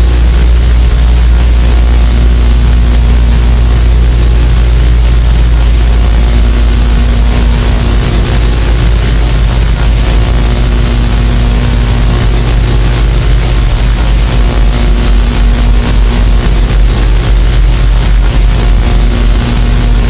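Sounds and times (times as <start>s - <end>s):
constant hum: 0.0s - 20.0s
deep rumbling drone: 0.0s - 20.0s
even hiss: 0.0s - 20.0s.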